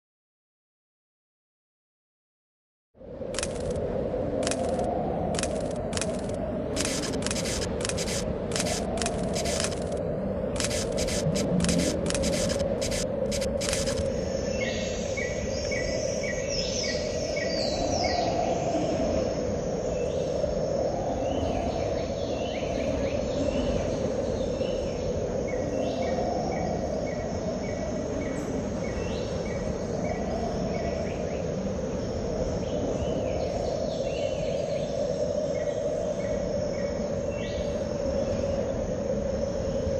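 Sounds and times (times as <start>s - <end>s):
steady noise bed: 3.0s - 39.9s
sharp crackling clicks: 3.3s - 3.8s, 4.4s - 10.0s, 10.6s - 14.1s
insect-like chirps: 3.3s - 18.6s.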